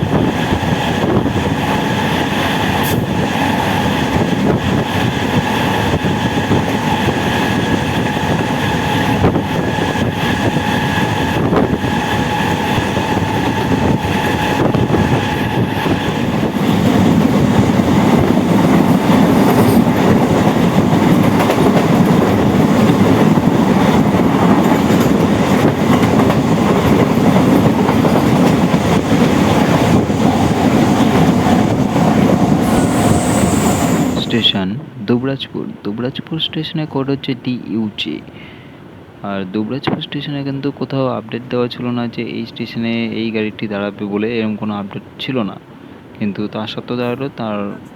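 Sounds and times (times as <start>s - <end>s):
train wheels clattering on track: 0.0s - 34.5s
train steady whine: 0.0s - 34.6s.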